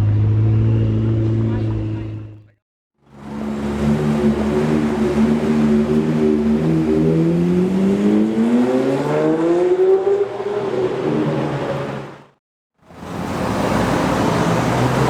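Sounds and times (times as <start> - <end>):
car engine revving: 0.0 - 2.4, 3.0 - 12.4.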